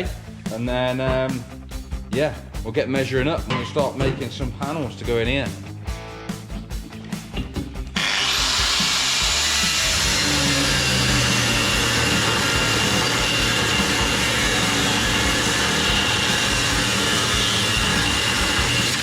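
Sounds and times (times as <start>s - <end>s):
angle grinder cutting steel: 8.0s - 19.0s.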